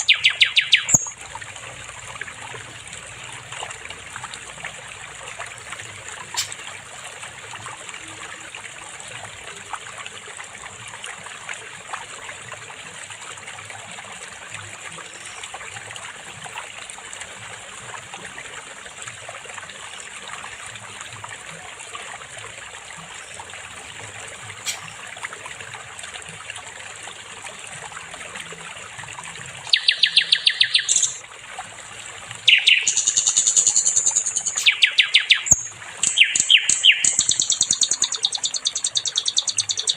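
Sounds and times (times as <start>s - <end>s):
songbird trilling: 0.0s - 1.2s, 29.7s - 31.2s, 32.5s - 39.9s
water trickling: 0.0s - 39.9s.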